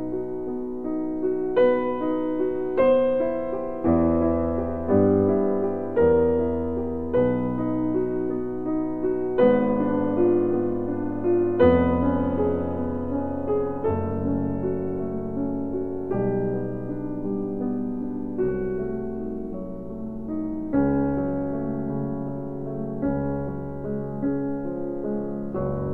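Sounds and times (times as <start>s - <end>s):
slow piano chords: 0.0s - 25.9s.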